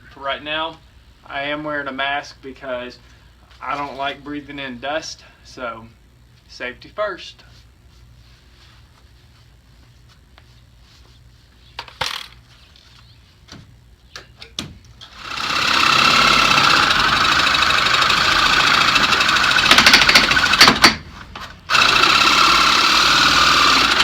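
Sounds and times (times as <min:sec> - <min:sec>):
reciprocating saw cutting nails: 0:15.0 - 0:21.0, 0:21.7 - 0:24.0.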